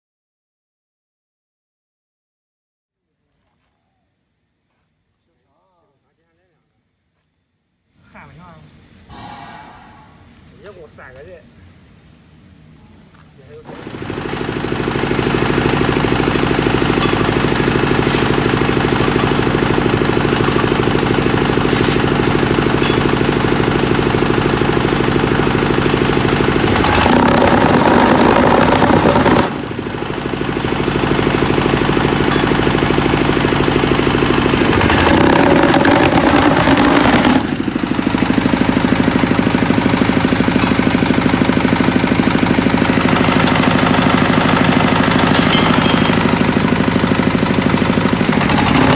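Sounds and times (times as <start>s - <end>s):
loud rough machine noise: 9.1s - 10.7s, 13.7s - 48.9s
diesel engine running: 13.7s - 48.9s.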